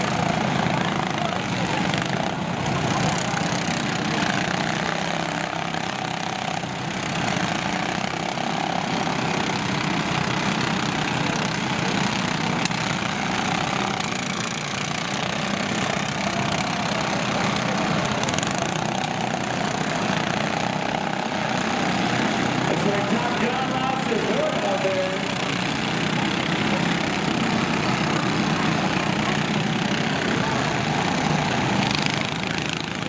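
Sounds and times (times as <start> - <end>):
lawn tractor engines running: 0.0 - 33.0.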